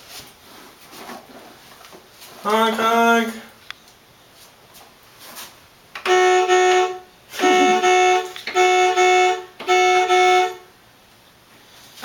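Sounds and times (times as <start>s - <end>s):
toy electronic pitched tones: 6.1s - 10.6s.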